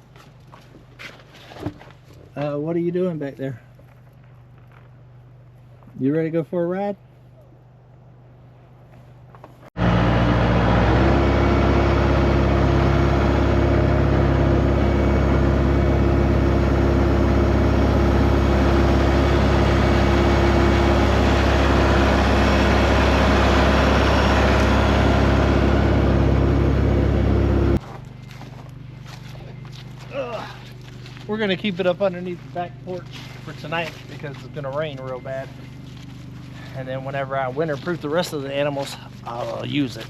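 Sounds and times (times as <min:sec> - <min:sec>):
tractor engine running: 0:09.3 - 0:40.0.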